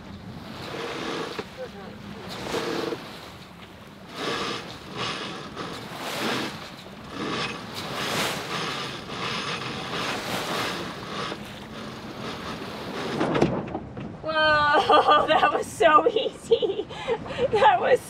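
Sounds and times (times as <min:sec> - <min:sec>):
line hauled through blocks: 0:00.4 - 0:15.1
furler gear rattling: 0:04.1 - 0:13.4.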